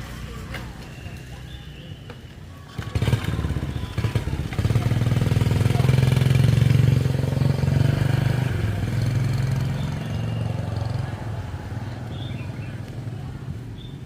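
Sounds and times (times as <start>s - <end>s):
small motorbike engine running: 2.6s - 13.6s.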